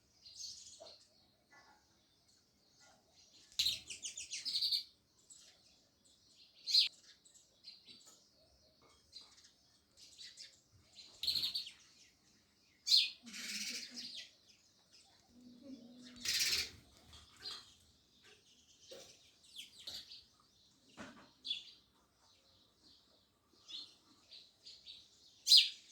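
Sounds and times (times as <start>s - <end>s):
sparrows chirping: 0.0s - 25.9s
harsh sparrow chatter: 2.8s - 5.8s, 8.0s - 23.0s.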